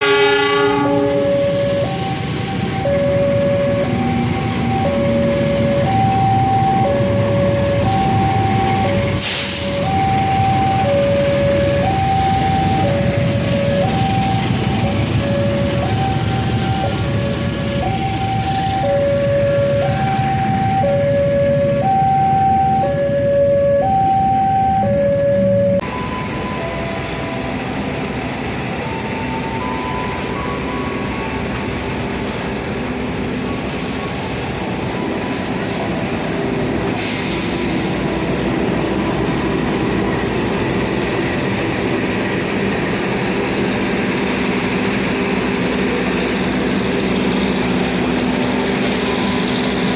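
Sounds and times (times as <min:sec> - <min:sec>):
two-note signal tone: 0:00.0 - 0:02.1
train rumbling: 0:00.0 - 0:49.9.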